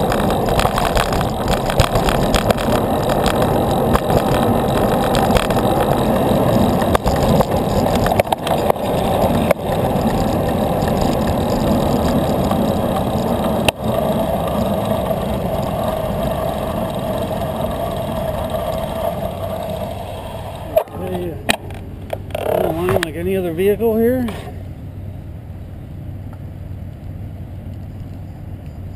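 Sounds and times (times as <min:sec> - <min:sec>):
wind on microphone: 0:00.0 - 0:20.8
bicycle road rumble: 0:00.0 - 0:28.9.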